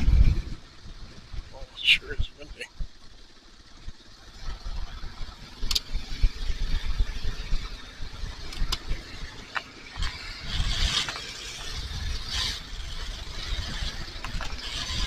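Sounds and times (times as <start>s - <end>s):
wind buffeting microphone: 0.0s - 1.6s, 10.0s - 15.0s
motorcycle running: 0.0s - 15.0s.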